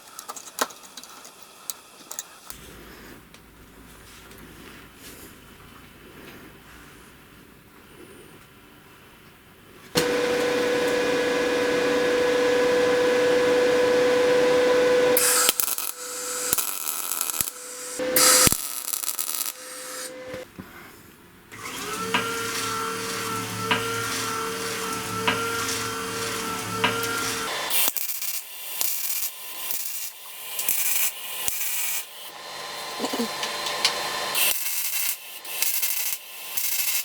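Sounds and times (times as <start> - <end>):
belt grinder motor humming: 10.0 - 20.4, 21.6 - 27.9
harsh grinding bursts: 10.0 - 20.4, 21.6 - 28.4.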